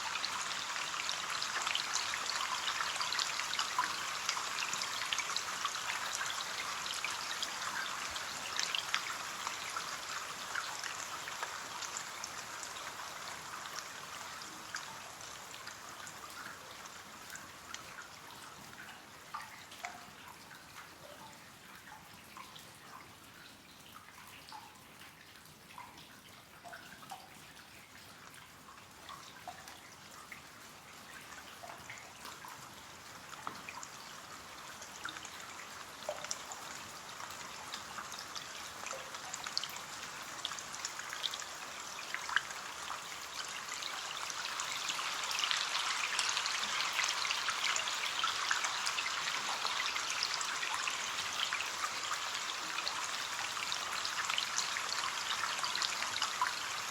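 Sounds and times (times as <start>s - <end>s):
rain on a window pane: 0.0s - 56.9s.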